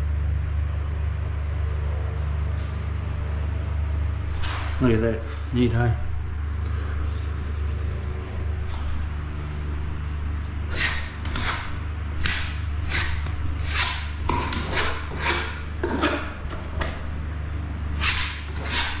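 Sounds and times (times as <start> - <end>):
steady low hum: 0.0 - 19.0
hand scraper scraping: 10.6 - 16.4, 18.0 - 19.0.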